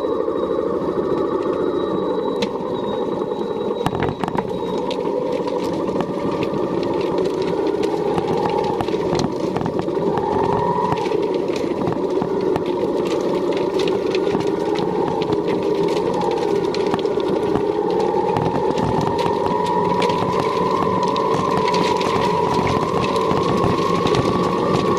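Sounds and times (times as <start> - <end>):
engine running: 0.0 - 24.9
sharp clicks and clatters: 2.3 - 24.9.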